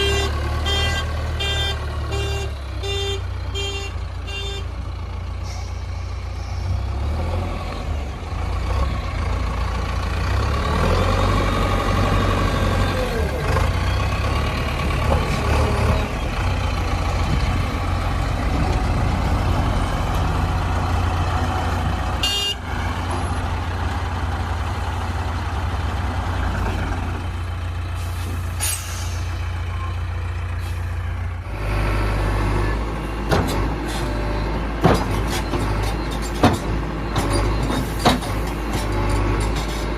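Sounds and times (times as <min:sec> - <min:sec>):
diesel machinery engines running: 0:00.0 - 0:39.9.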